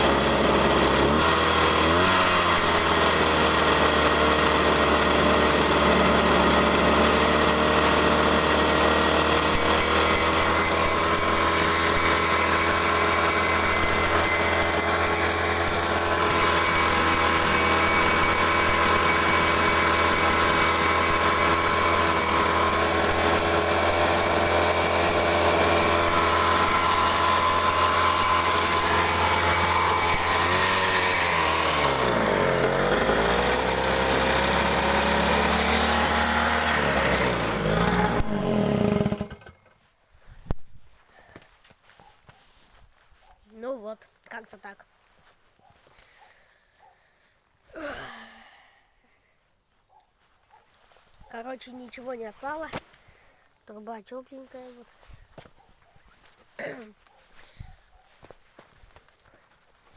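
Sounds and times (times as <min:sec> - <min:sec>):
small engine running: 0:00.0 - 0:39.6.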